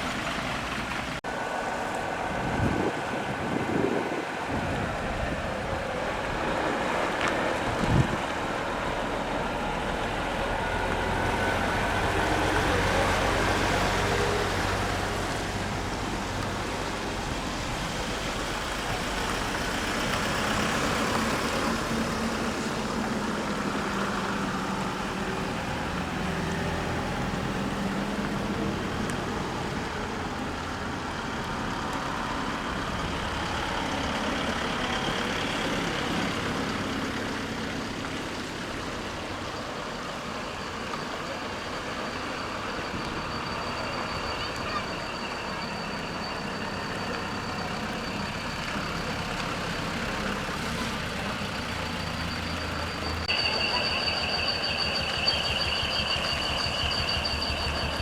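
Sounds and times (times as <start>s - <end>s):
traffic noise: 0.0s - 58.0s
truck diesel engines: 0.0s - 58.0s.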